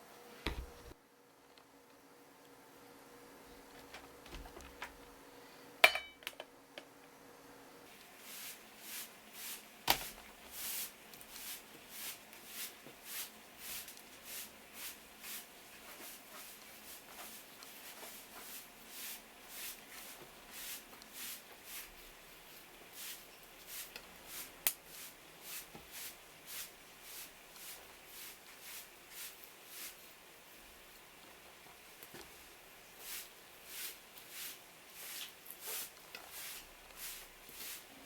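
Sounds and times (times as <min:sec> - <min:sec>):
knife strokes on cutting board: 0:07.9 - 0:30.2, 0:33.0 - 0:38.0.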